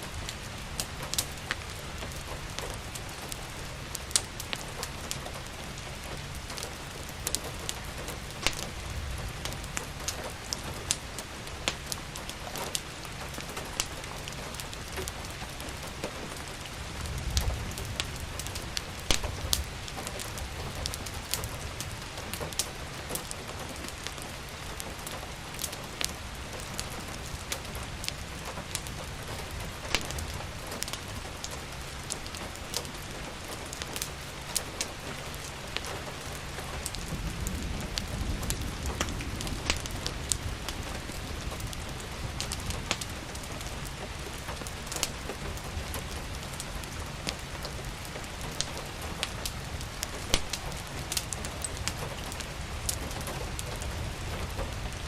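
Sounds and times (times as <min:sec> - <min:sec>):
steady rain: 0:00.0 - 0:55.0
wood fire crackling and popping: 0:00.0 - 0:55.0.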